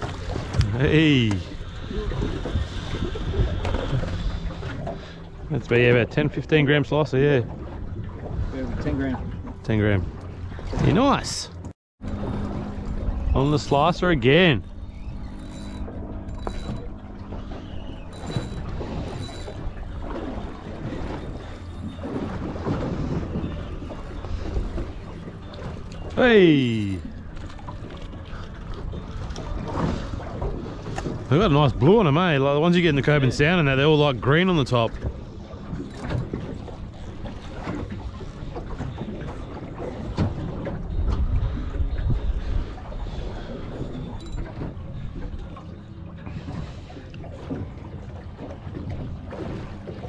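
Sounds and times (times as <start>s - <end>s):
water: 0.0s - 50.0s
wind: 0.0s - 50.0s
fishing reel clicking and whirring: 14.7s - 19.9s.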